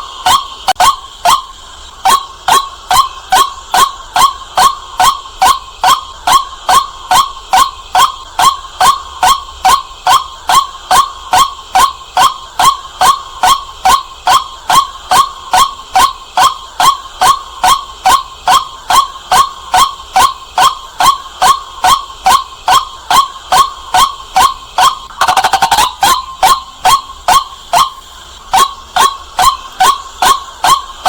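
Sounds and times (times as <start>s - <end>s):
waterhen calling: 16.8s - 31.0s.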